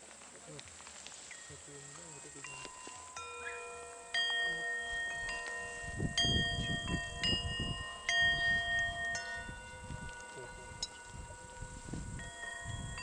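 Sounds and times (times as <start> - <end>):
singing bowls ringing: 1.2 - 13.0.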